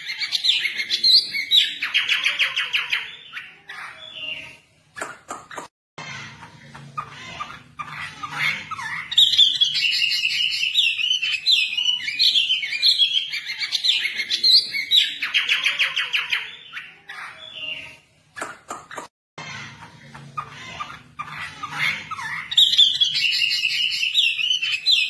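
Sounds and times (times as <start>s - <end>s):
bird chirping and whistling: 0.0s - 3.4s, 7.8s - 17.7s, 21.2s - 25.0s.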